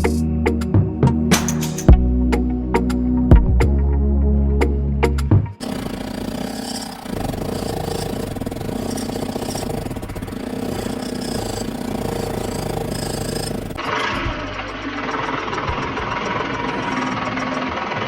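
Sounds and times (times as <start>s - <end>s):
model tractor motor running: 5.6s - 18.0s.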